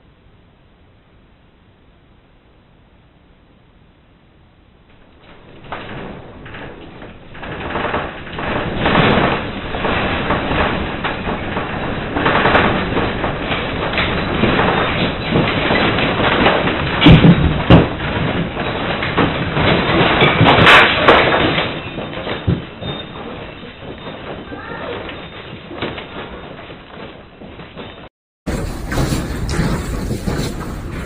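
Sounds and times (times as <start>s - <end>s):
building rattling and rumbling: 4.6s - 31.0s
heavy knocks: 5.2s - 26.3s, 27.4s - 31.0s.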